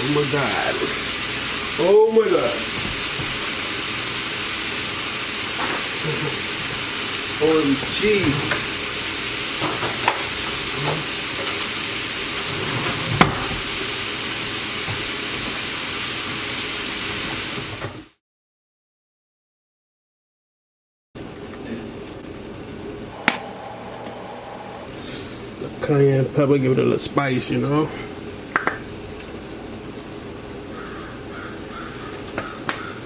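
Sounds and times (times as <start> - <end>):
seafood sizzling in a pan: 0.0 - 12.5, 13.7 - 17.6.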